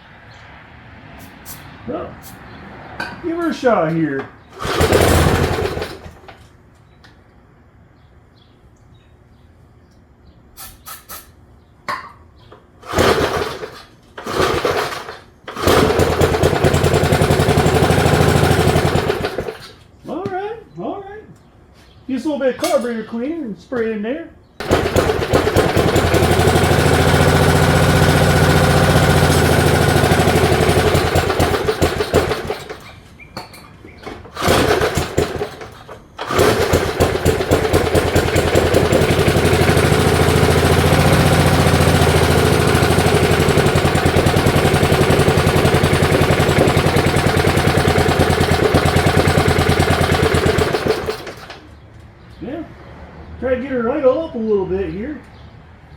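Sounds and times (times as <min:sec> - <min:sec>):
small mower engine running: 0:04.4 - 0:06.5, 0:12.8 - 0:19.9, 0:24.6 - 0:33.1, 0:34.0 - 0:51.6.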